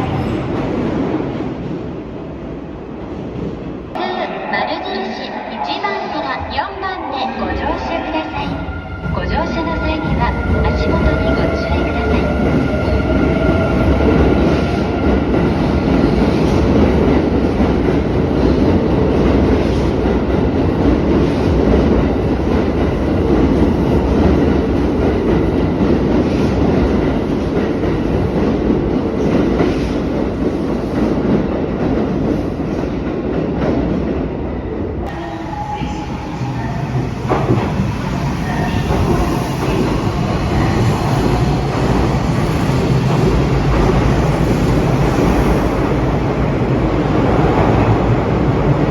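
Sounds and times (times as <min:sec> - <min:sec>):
train rumble: 0:06.2 - 0:48.9
train wheels clattering on rails: 0:10.0 - 0:34.2.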